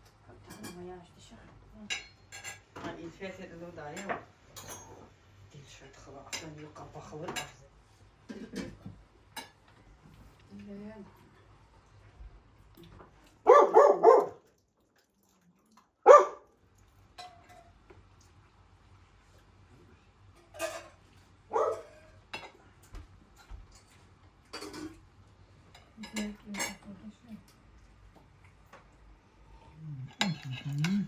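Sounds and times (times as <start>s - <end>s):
dog barking: 13.4s - 14.5s, 16.0s - 16.5s, 21.5s - 22.1s.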